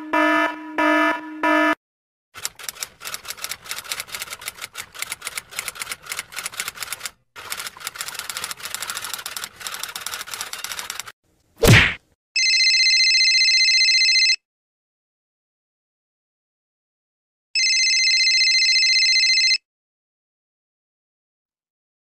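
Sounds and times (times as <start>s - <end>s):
alarm beeping: 0.0s - 1.8s
typewriter keys clacking: 2.4s - 11.1s.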